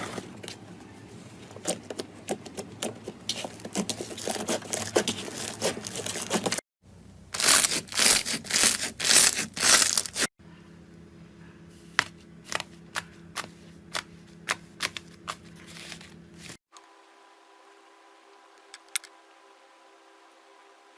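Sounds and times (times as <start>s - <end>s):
faint steady hum: 6.8s - 20.9s
slime crunching and crackling: 7.4s - 10.3s.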